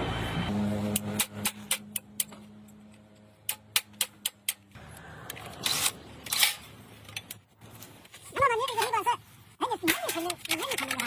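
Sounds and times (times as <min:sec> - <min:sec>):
sharp taps on metal: 0:03.4 - 0:04.7.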